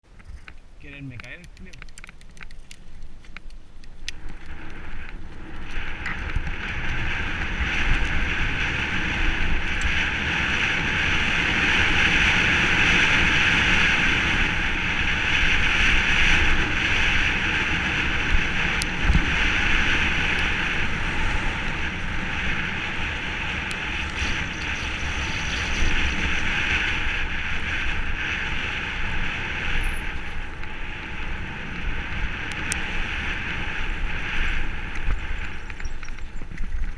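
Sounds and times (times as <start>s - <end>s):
bike rattling over ground: 0.0s - 36.9s
bike tyre rumble: 0.0s - 36.9s
wind noise on microphone: 0.0s - 36.9s
sharp clicks: 0.2s - 5.2s.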